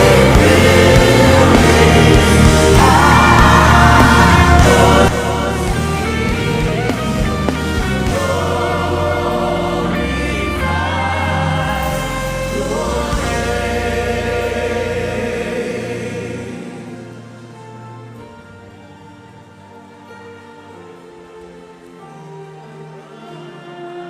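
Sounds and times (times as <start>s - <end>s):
voices singing: 0.0s - 18.6s
bass: 0.0s - 21.5s
sustained keyboard chords: 0.0s - 24.0s.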